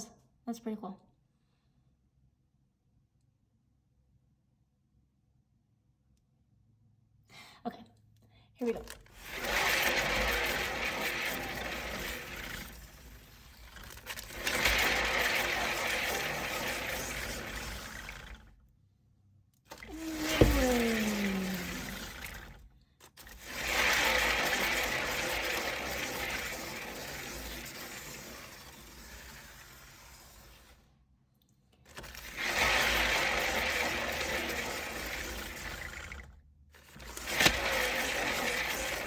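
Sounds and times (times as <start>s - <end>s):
turntable whirring: 19.9s - 22.5s.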